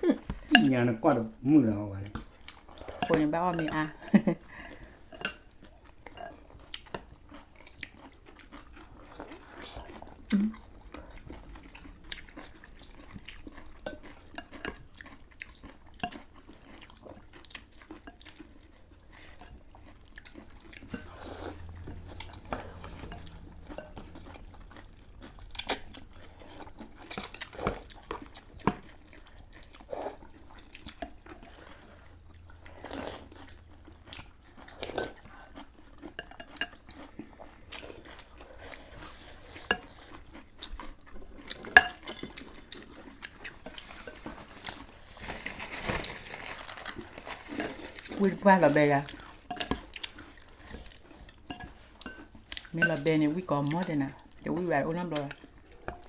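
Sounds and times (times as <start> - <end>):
people chewing and crunching: 0.0 - 56.0
utensils clinking against bowls: 2.8 - 4.0, 5.1 - 5.5, 20.8 - 24.4, 45.7 - 54.0.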